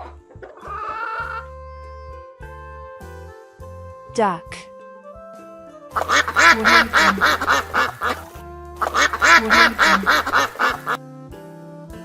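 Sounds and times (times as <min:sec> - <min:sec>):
duck quacking: 0:06.0 - 0:11.0.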